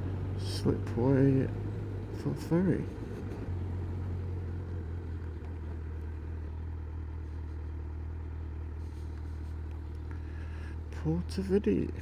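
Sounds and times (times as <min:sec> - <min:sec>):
motorcycle engine humming: 0:00.0 - 0:12.0.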